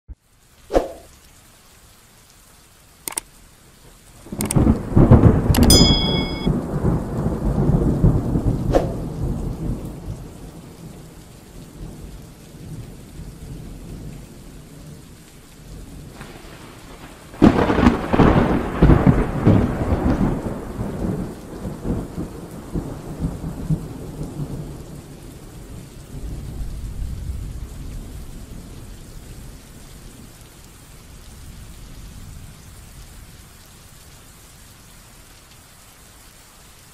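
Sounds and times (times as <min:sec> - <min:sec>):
steady rain: 0:00.1 - 0:36.9
sharp clicks: 0:03.1 - 0:03.3, 0:04.3 - 0:04.6, 0:05.5 - 0:06.5
rolling thunder: 0:04.3 - 0:05.6, 0:06.5 - 0:15.0, 0:15.7 - 0:29.6
short bell-like chime: 0:05.6 - 0:06.5.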